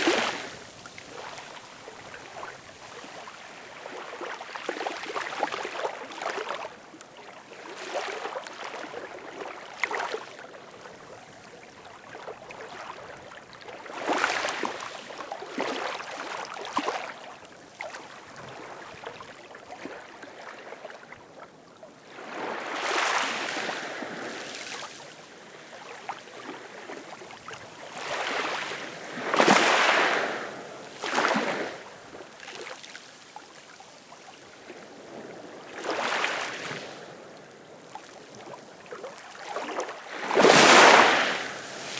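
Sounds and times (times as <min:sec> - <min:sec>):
ocean waves washing in: 0:40.1 - 0:41.9.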